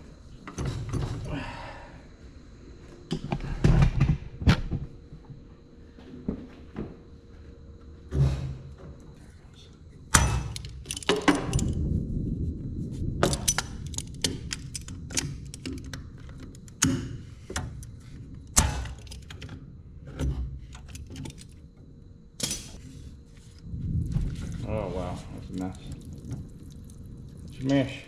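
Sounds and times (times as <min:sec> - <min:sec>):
hand tools clicking and clinking: 0:10.1 - 0:11.8, 0:13.2 - 0:17.0.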